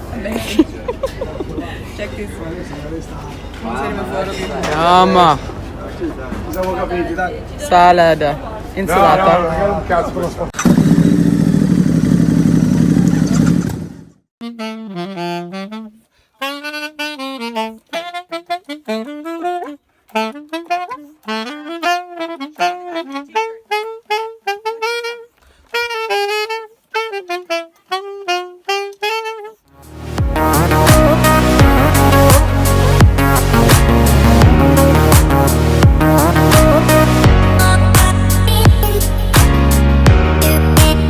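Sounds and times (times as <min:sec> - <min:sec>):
solo saxophone melody: 0:14.4 - 0:41.0.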